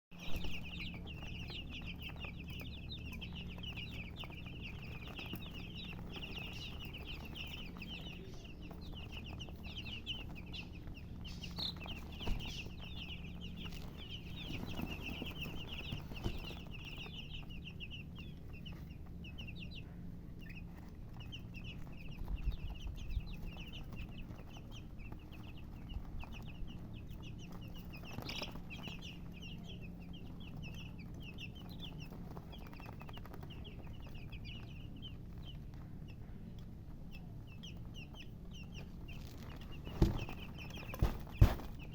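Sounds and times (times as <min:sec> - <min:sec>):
baby chicks peeping: 0:00.0 - 0:41.9
steady low hum: 0:00.1 - 0:41.9.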